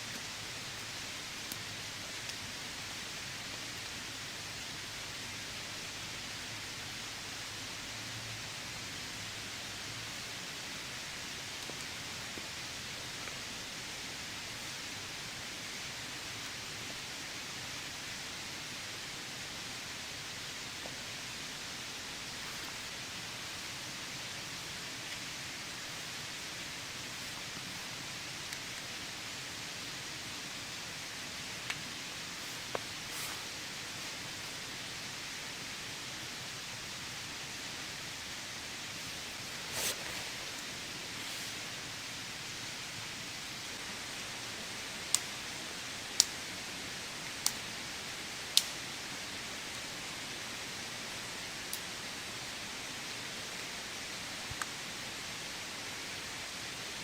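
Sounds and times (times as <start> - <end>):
heavy rain falling: 20.5 - 46.2.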